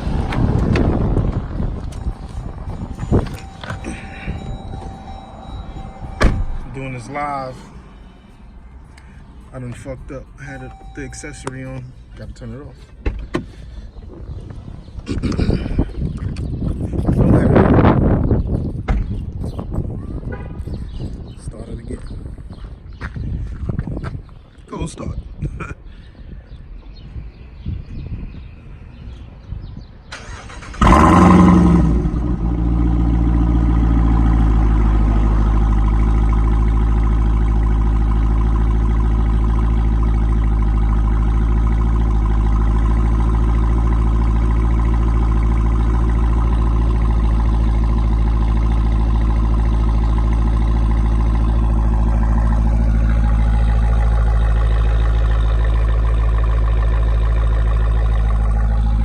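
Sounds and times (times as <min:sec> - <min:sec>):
car engine revving and idling: 0:30.2 - 0:59.0.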